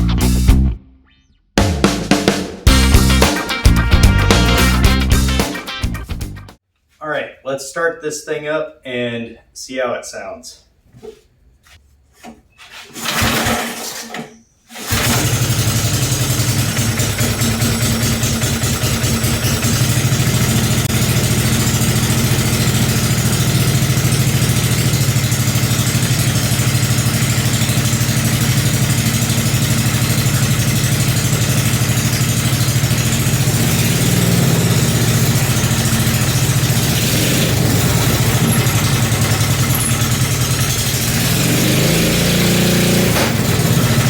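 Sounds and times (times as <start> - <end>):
small engine starting and running: 12.9 - 44.0.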